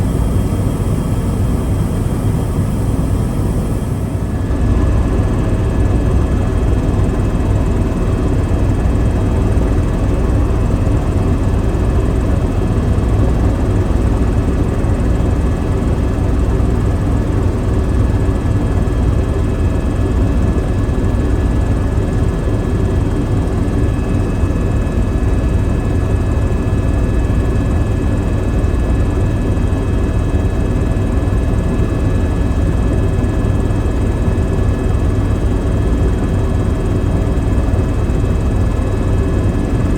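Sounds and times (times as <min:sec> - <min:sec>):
thin high whine: 0:00.0 - 0:04.5
helicopter rotor and engine noise: 0:00.0 - 0:39.9.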